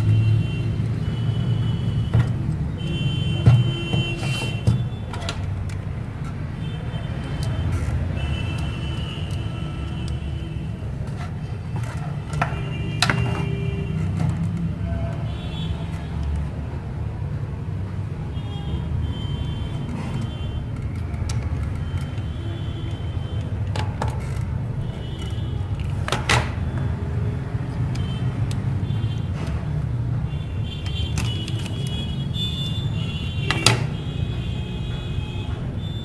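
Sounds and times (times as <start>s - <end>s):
phone parts clicking: 19.8s - 29.5s, 30.3s - 34.2s.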